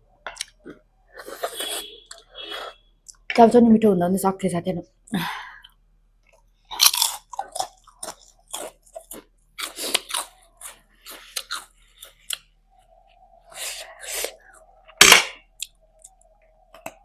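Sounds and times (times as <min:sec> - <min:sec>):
crunching crisp food: 0:06.3 - 0:12.5.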